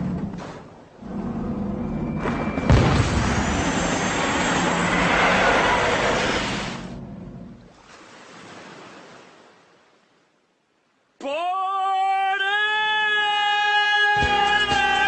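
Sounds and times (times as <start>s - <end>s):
airplane noise: 0.0s - 7.9s.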